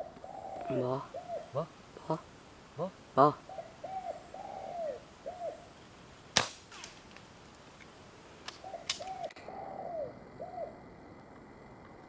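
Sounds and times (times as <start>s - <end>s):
dove cooing: 0.0s - 5.8s, 8.6s - 11.2s
air rifle shot: 6.4s - 7.1s.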